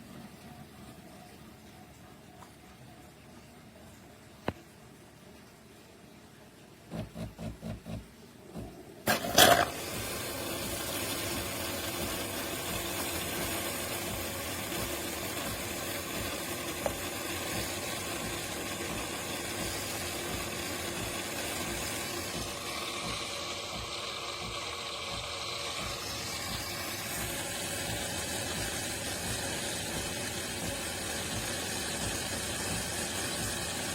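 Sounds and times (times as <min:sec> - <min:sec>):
espresso machine brewing: 0:07.0 - 0:33.9.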